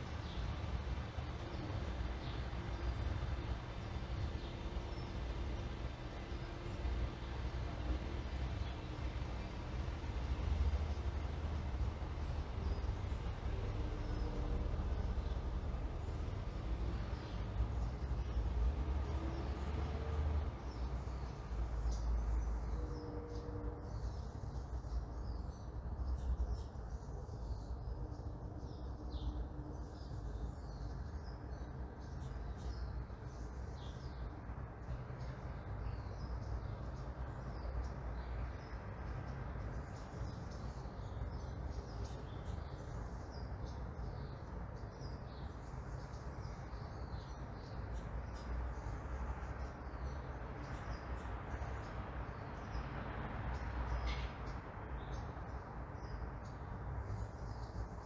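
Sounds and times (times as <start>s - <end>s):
small birds chirping: 0.0s - 18.6s, 23.9s - 58.0s
distant traffic rumble: 0.0s - 58.0s.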